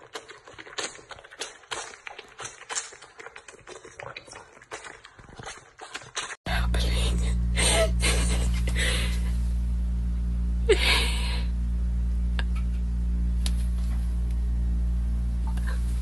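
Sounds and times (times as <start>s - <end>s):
steady low hum: 6.5s - 16.0s.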